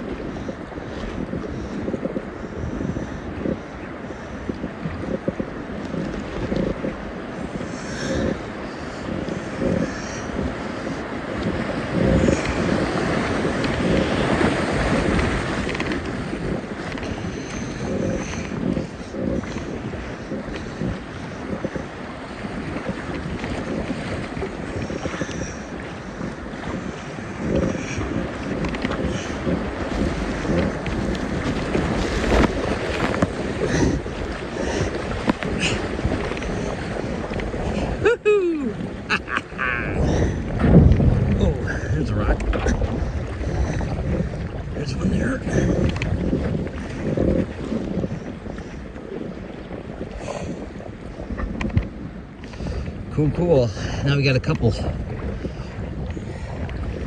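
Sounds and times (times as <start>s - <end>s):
wind buffeting microphone: 0.0s - 57.0s
rushing river water: 5.6s - 46.0s
river water rushing through rapid: 29.8s - 36.4s.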